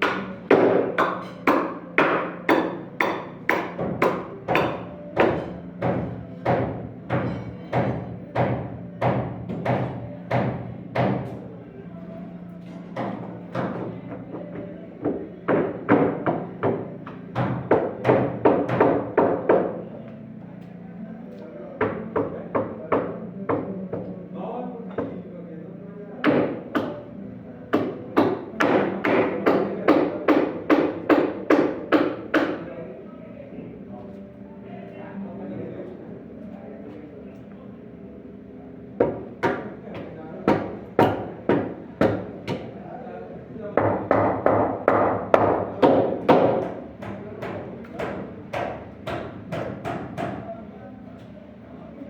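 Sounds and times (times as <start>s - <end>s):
hammer striking wood: 0.0s - 11.3s, 15.0s - 19.7s, 26.2s - 27.0s, 27.7s - 32.6s, 39.0s - 42.7s, 43.8s - 50.4s.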